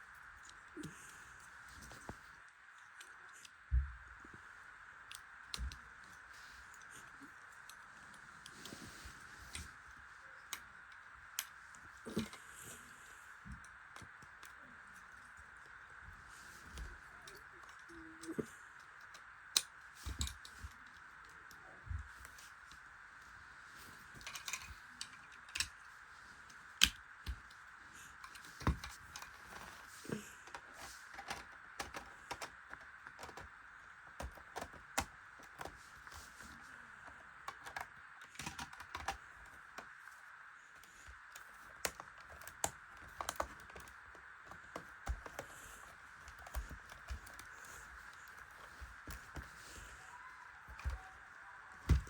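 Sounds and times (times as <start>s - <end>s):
faint steady hum: 0.0s - 52.0s
plastic pieces clicking together: 24.1s - 40.1s, 40.8s - 49.8s.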